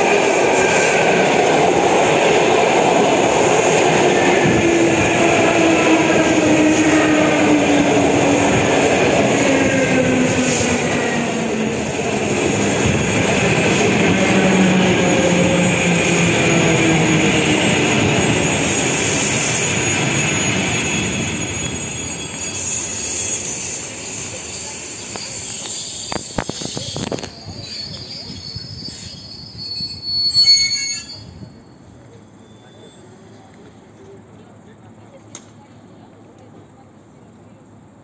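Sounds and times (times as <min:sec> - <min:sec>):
train wheels rumbling on rails: 0:00.0 - 0:30.4.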